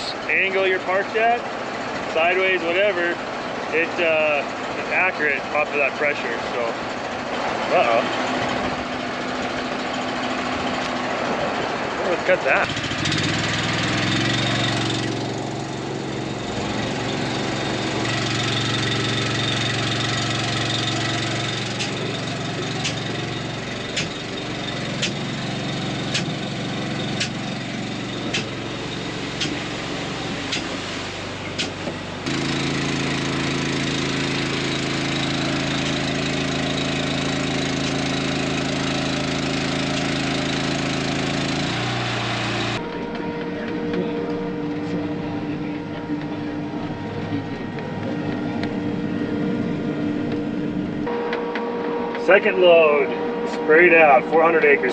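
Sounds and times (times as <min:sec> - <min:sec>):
engine running: 0:00.0 - 0:54.9
sharp clicks: 0:21.7 - 0:22.0, 0:23.9 - 0:24.2, 0:25.0 - 0:25.2, 0:26.1 - 0:26.4, 0:27.2 - 0:27.4, 0:28.3 - 0:28.5, 0:31.6 - 0:31.8.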